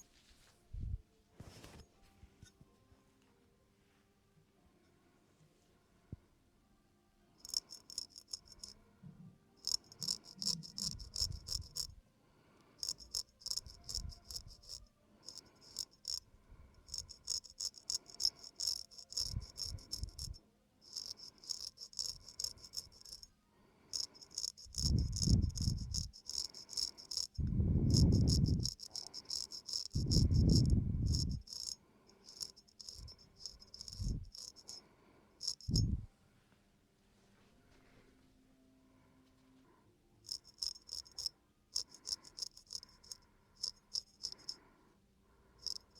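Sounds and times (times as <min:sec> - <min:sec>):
razor scraping skin: 0:07.4 - 0:08.7, 0:09.6 - 0:11.9, 0:12.8 - 0:16.2, 0:16.8 - 0:23.3, 0:23.9 - 0:34.8, 0:35.4 - 0:35.8, 0:40.3 - 0:44.6, 0:45.6 - 0:45.9.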